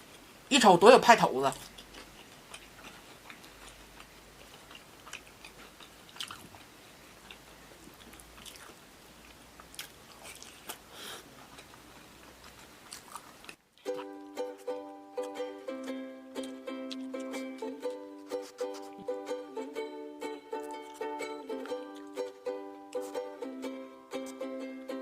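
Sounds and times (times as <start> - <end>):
chewing crunches: 1.6 - 14.2
ukulele music: 13.8 - 25.0.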